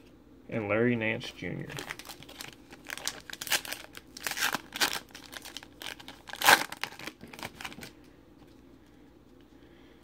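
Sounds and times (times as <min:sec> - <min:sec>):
foil pack tearing and crinkling: 0:01.7 - 0:07.9.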